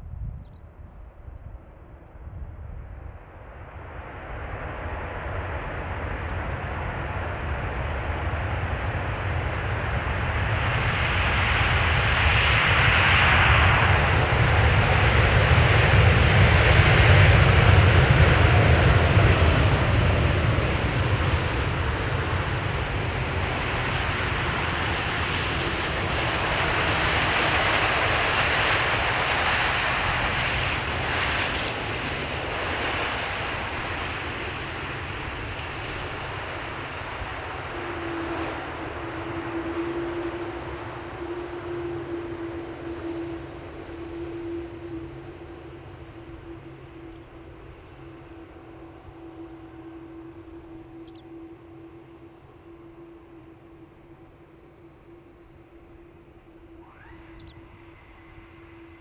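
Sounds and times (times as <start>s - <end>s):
jet engines passing close: 0.0s - 59.0s
falling engine whine: 4.0s - 59.0s.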